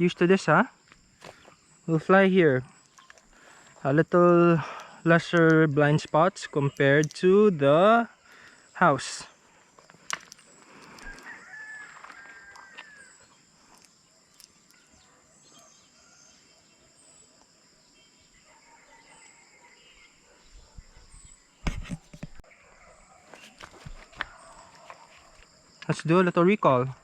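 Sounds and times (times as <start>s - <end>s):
insect drone: 0.0s - 27.0s
faint bird chirps: 10.4s - 21.7s.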